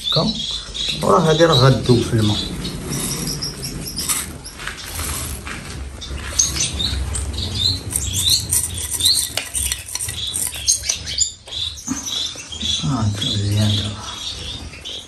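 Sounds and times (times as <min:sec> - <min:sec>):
cage birds chirping: 0:00.0 - 0:15.0.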